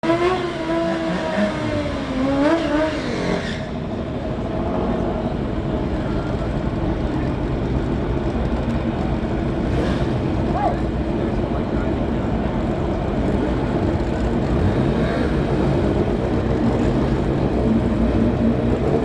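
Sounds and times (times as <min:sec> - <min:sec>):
motorbike engines at high revs: 0:00.0 - 0:03.6.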